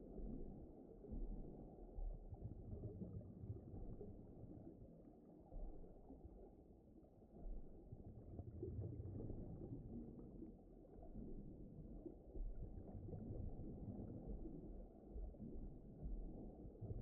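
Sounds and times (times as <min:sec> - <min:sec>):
muffled underwater rumble: 0:00.0 - 0:17.0.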